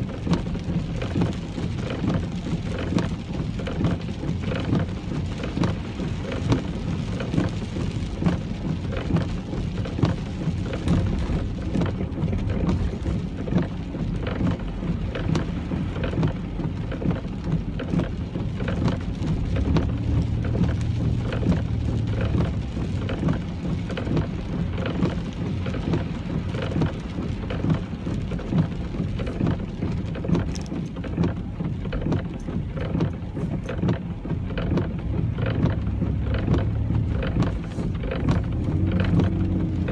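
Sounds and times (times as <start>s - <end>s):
car rumbling on road: 0.0s - 39.9s
rain drops hitting a car: 0.0s - 39.9s.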